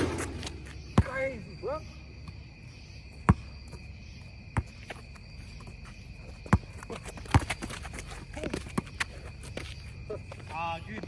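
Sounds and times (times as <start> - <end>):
basketball bouncing on court: 0.0 - 1.2
crickets chirring: 0.0 - 11.0.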